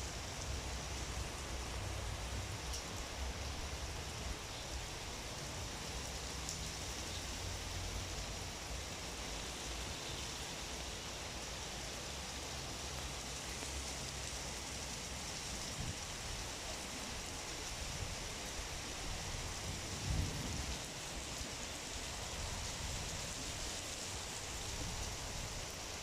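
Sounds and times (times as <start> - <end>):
heavy rain pouring: 0.0 - 26.0
wind gusts rumbling: 19.3 - 20.9.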